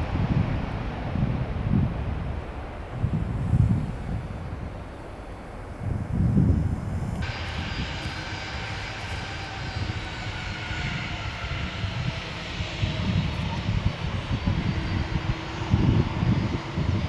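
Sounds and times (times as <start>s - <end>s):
jet engines whining: 0.0s - 17.0s
wind buffeting microphone: 0.0s - 17.0s.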